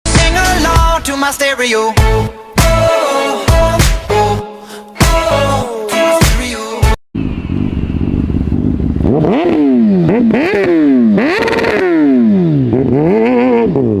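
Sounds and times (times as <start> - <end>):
motorcycle engine revving: 7.2 - 14.0.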